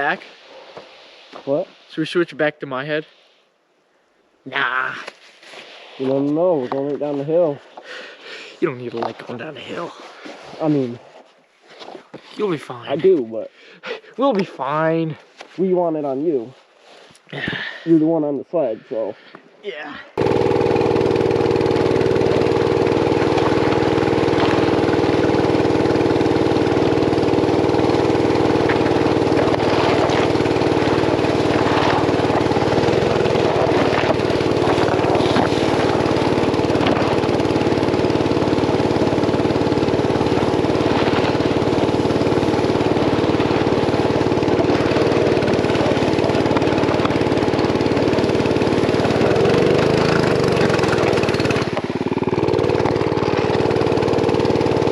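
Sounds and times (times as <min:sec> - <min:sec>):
small engine running loudly: 0:20.2 - 0:54.9.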